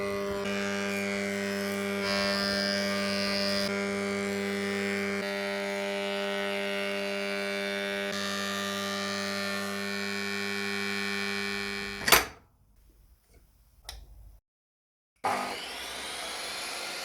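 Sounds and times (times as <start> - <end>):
small electric motor humming: 0.0 - 12.1.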